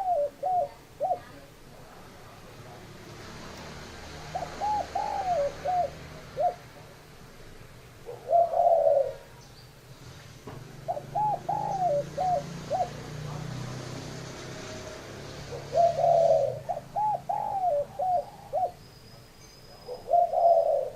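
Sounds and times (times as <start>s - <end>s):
dove cooing: 0.0s - 1.6s, 4.1s - 6.9s, 8.0s - 9.4s, 10.8s - 13.8s, 15.3s - 18.8s, 19.7s - 20.9s.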